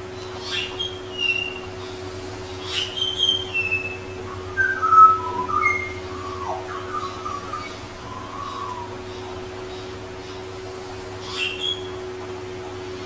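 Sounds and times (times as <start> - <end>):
bird singing whistled notes: 0.5 - 1.7, 2.7 - 9.3, 11.3 - 12.0.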